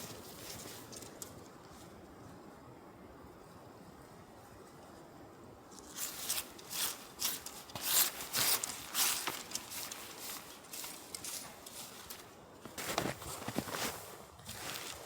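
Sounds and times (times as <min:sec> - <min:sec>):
footsteps crunching on ground: 0:06.4 - 0:15.0.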